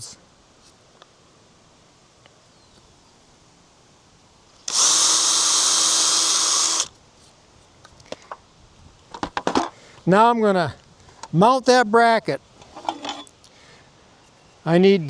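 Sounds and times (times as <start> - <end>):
power drill boring into wood: 4.7 - 6.9.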